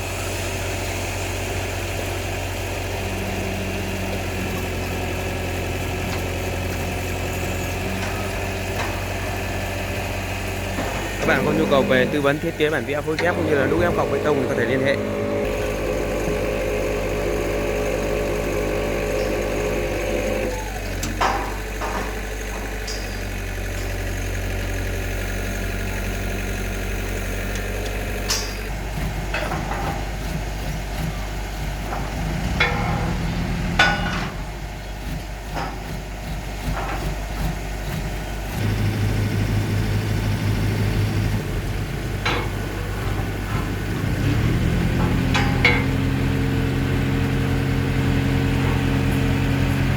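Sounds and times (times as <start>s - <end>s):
pile-pressing rig engine running: 0.0s - 49.9s
sharp metallic clanks: 21.0s - 24.0s, 28.2s - 28.7s, 31.9s - 34.4s, 44.8s - 46.3s.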